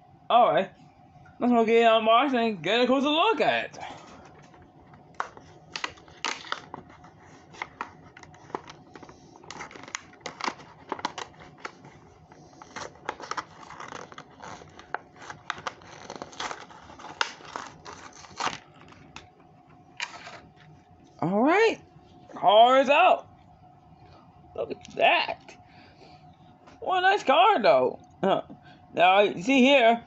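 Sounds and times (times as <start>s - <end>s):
plastic and cardboard packaging crinkling: 4.1s - 20.8s.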